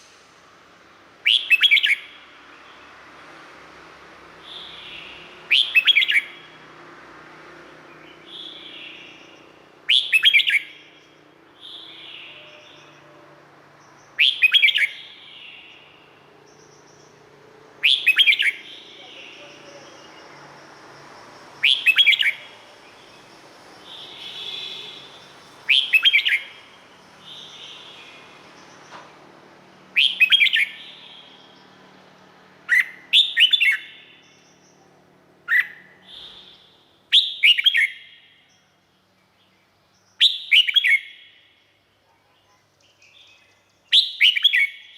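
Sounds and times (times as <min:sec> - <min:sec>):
bird singing rapid notes: 0:01.2 - 0:02.9, 0:04.4 - 0:06.5, 0:07.8 - 0:41.6, 0:42.7 - 0:44.9
soft bird calls: 0:07.9 - 0:44.9.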